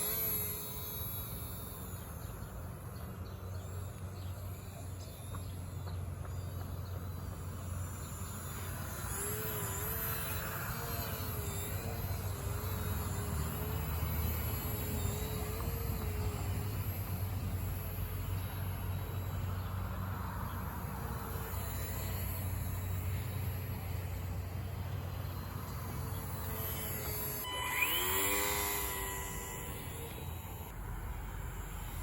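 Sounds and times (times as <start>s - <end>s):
insect chirping: 0.0s - 2.8s, 7.0s - 23.6s, 25.0s - 32.0s
small electric motor whirring: 0.0s - 32.0s.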